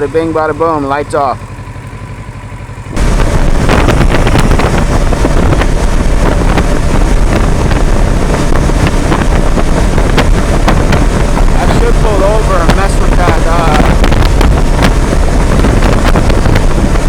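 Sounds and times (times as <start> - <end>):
motorcycle engine idling: 0.0 - 13.4
wind buffeting microphone: 0.0 - 17.0.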